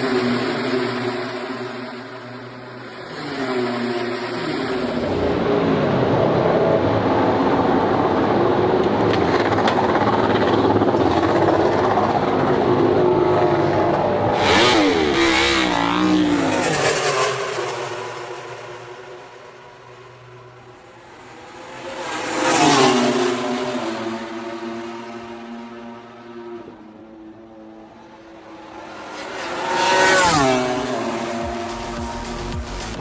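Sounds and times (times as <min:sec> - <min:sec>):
motorcycle engine at high revs: 0:00.0 - 0:05.6, 0:14.3 - 0:19.4, 0:28.9 - 0:33.0.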